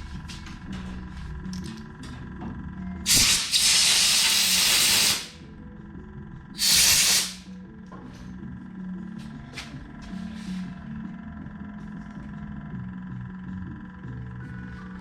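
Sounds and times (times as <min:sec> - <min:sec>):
aerosol spray can hissing: 0:03.1 - 0:05.4, 0:06.6 - 0:07.4.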